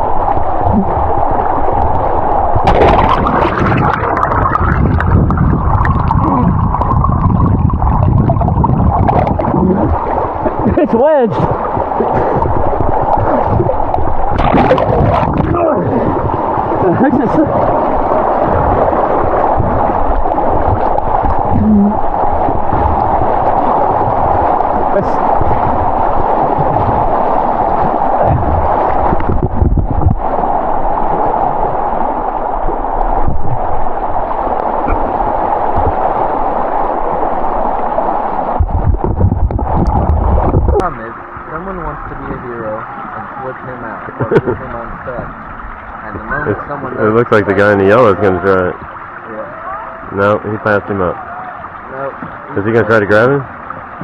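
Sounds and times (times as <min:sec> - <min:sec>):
river water rushing: 0:00.0 - 0:29.4, 0:30.2 - 0:54.0
low knocks and thuds: 0:02.6 - 0:10.8, 0:28.2 - 0:30.2, 0:35.7 - 0:36.0.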